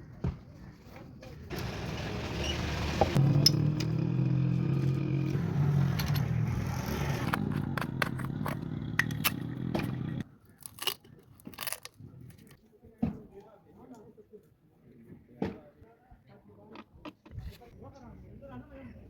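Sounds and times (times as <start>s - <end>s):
small engine humming: 1.5s - 10.2s.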